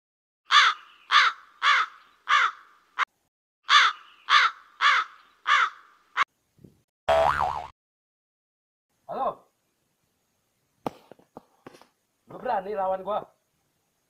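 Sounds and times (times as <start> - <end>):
bird cawing: 0.5 - 2.8, 3.6 - 6.3.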